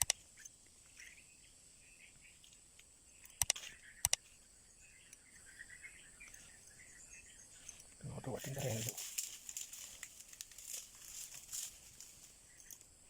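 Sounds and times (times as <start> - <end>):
sharp clicks: 0.0 - 0.5, 2.4 - 4.3
insects droning: 0.0 - 13.0.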